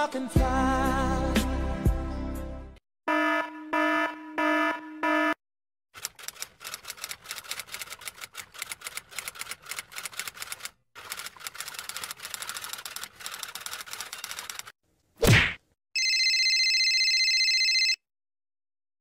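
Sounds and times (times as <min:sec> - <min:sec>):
electronic alarm beeping: 0:03.1 - 0:05.4
typewriter keys clacking: 0:06.0 - 0:14.7.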